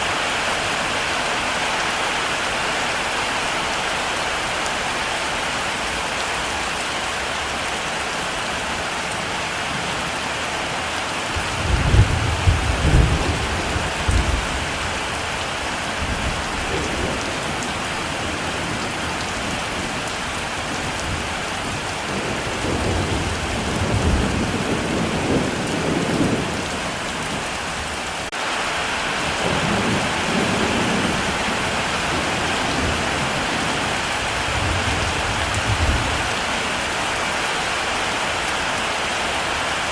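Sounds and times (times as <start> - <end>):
heavy rain hissing: 0.0 - 39.9
thunder rumbling: 11.3 - 19.9, 29.1 - 36.8.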